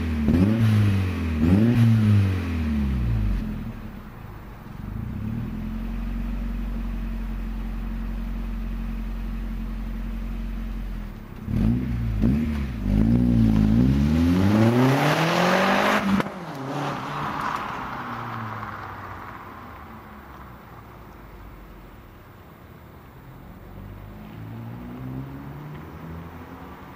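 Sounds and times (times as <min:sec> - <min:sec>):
car engine revving: 0:00.0 - 0:04.0, 0:10.3 - 0:22.0, 0:23.4 - 0:26.9.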